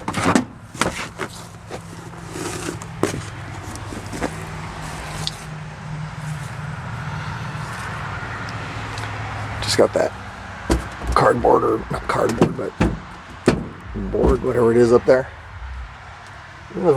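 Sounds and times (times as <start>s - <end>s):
clicks and scrapes of handling: 0.0s - 5.4s
low steady hum: 13.8s - 16.4s.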